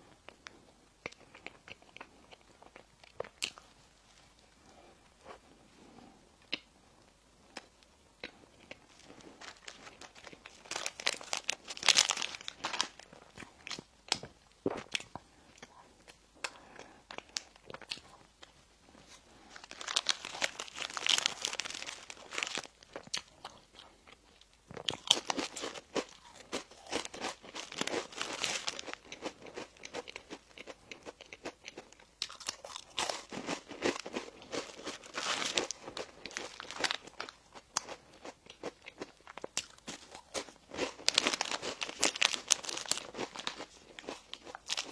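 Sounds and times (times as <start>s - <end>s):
crunchy bites and chewing: 7.5s - 15.7s, 19.4s - 44.9s.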